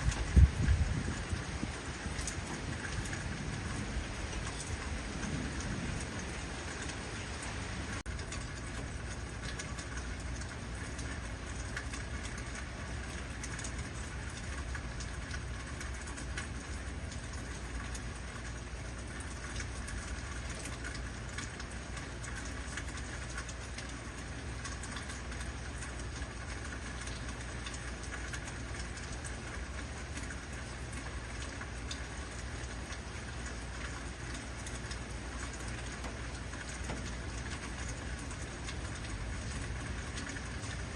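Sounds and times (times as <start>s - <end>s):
steady low rumble: 0.0s - 11.7s
heavy rain falling: 0.0s - 40.9s.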